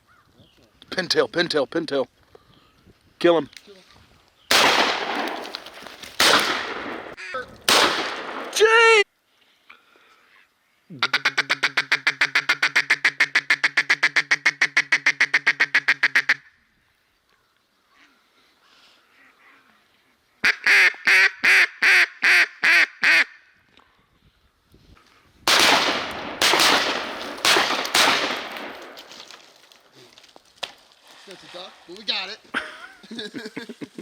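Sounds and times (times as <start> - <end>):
duck call quacking: 11.0 - 16.5, 20.4 - 23.4.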